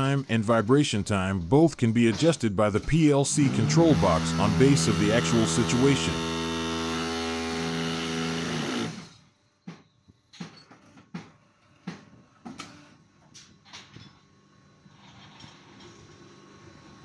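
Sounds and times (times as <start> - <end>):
block machine humming: 2.0 - 9.2.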